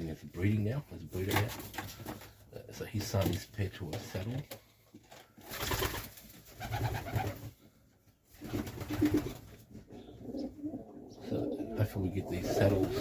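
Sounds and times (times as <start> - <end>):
pigeons cooing: 9.9 - 13.0.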